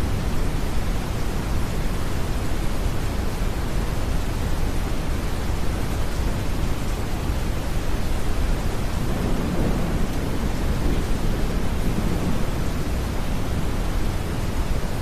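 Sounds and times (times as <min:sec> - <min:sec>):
rain hiss: 0:00.0 - 0:15.0
distant thunder rumble: 0:08.1 - 0:15.0.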